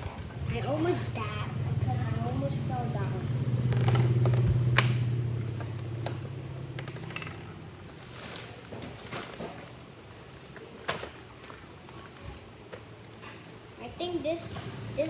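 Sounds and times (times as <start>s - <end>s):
low hum: 0.0s - 7.8s
plastic toys clicking: 6.8s - 7.7s.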